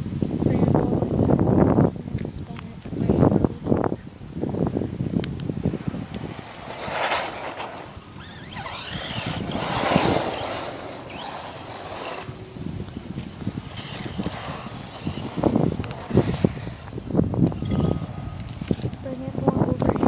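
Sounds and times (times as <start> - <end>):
rc car motor whining: 5.7 - 19.0.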